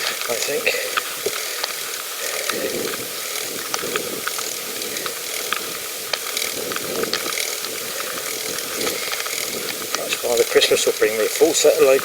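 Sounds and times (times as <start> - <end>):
bicycle clicks and rattles: 0.0 - 12.0
tyre and wind hiss: 0.0 - 12.0.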